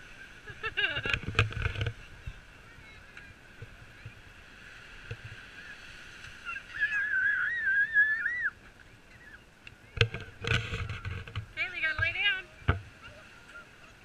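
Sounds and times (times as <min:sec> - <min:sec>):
child squealing: 0:06.4 - 0:08.6.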